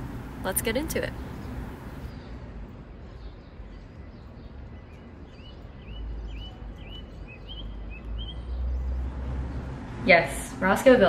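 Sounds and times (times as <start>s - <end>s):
steady low rumble: 0.0s - 3.0s.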